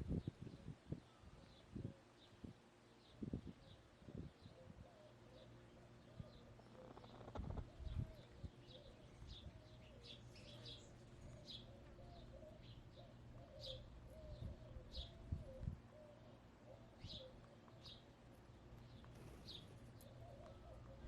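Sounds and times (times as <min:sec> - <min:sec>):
small birds chirping: 0:03.0 - 0:21.0.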